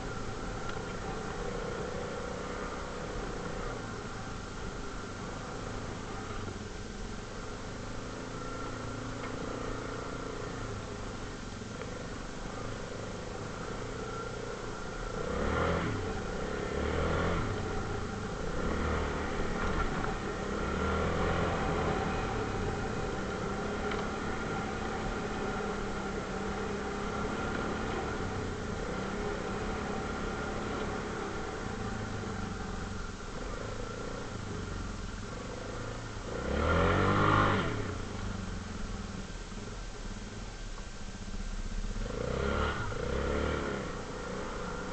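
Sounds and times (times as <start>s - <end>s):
atv engine revving: 0.0s - 40.4s, 41.2s - 44.9s.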